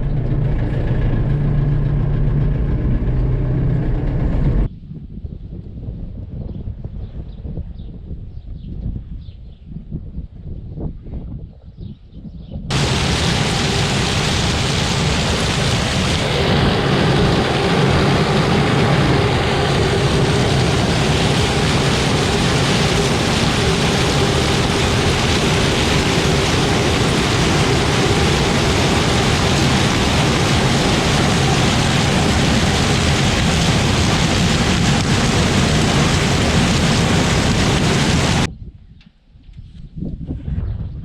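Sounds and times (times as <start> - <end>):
tractor engine running: 0.0 - 4.7, 12.7 - 38.5.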